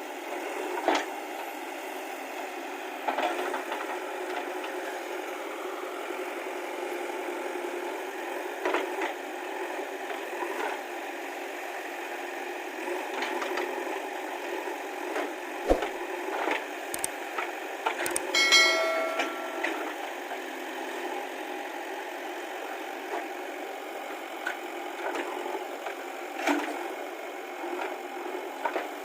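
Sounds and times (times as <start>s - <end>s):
metallic clank with ringing: 18.1s - 20.0s.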